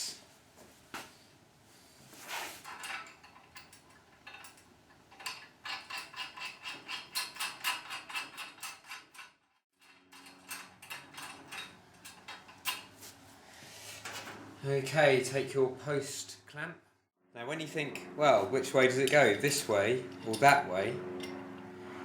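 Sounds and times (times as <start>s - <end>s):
metallic clicks of nuts tightening: 2.7s - 12.9s.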